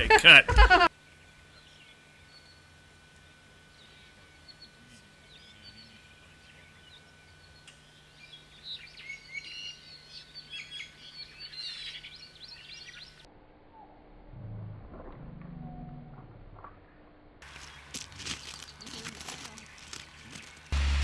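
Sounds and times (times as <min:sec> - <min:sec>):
songbirds chirping and singing: 0:03.7 - 0:13.2.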